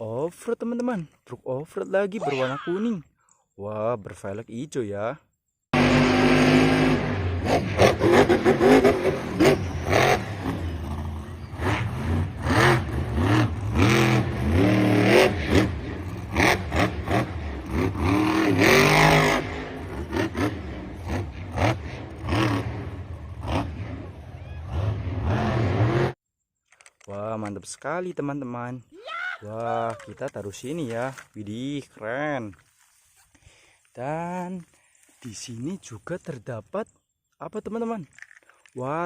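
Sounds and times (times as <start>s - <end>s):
car engine revving: 5.8s - 26.2s.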